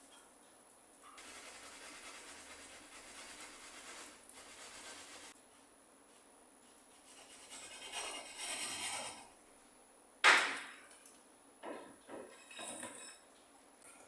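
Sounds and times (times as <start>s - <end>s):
hand saw rasping: 1.2s - 5.3s, 7.0s - 9.3s.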